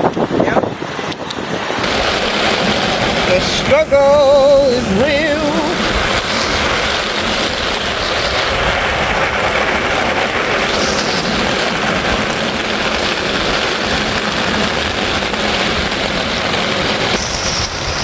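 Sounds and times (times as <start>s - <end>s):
heavy rain pouring: 0.1s - 18.0s.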